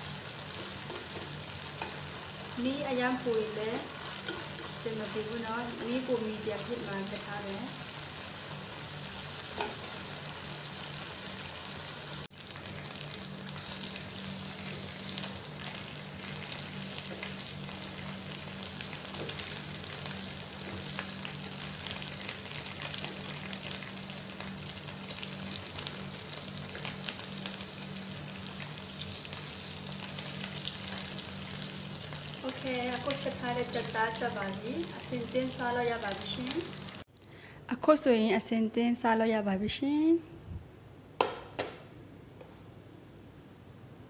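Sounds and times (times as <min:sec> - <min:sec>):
chicken sizzling in a pan: 0:00.0 - 0:37.1.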